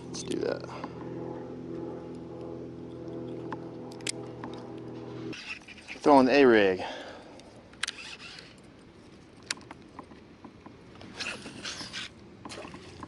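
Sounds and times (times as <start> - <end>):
fishing line zipping off reel: 5.3 - 6.1, 7.8 - 8.6, 11.1 - 12.8.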